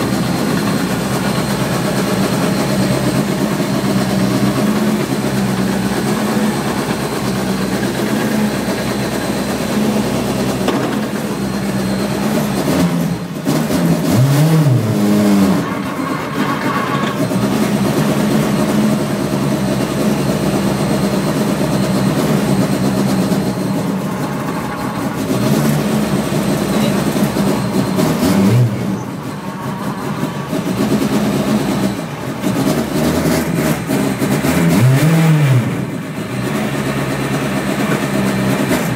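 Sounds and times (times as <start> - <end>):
rally car engine revving: 0.0 - 38.9.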